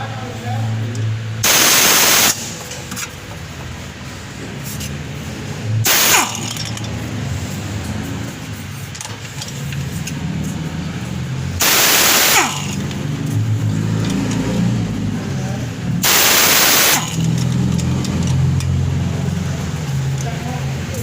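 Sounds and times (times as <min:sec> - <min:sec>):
loud hissing bursts: 0:01.4 - 0:02.5, 0:05.8 - 0:06.6, 0:11.6 - 0:13.0, 0:16.0 - 0:17.3.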